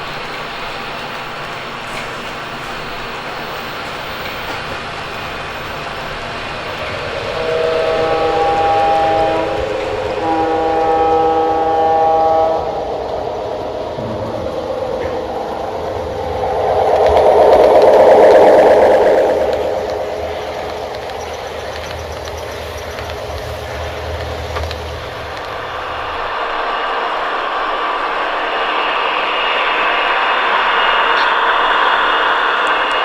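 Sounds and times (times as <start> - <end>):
train running rumble: 0.0 - 33.0
train horn blasts: 6.8 - 13.3
rushing rattling noise: 12.9 - 33.0.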